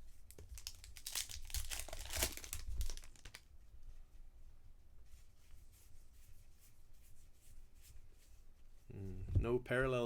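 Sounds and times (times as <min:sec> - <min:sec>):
cards rustling in hand: 0:00.3 - 0:03.5
foil wrapper crinkling and tearing: 0:00.3 - 0:03.5.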